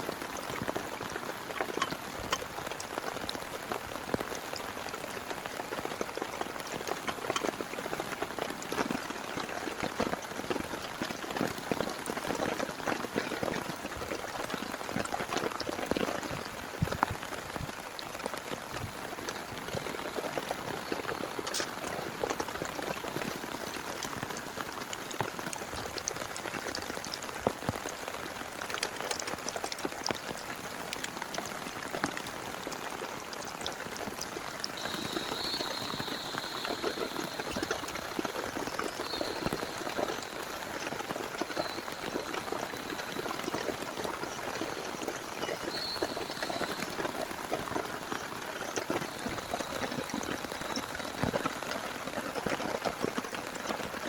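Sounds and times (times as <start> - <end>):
rain pattering on a tent: 0.0 - 54.0
faint high thin tone: 34.8 - 40.5.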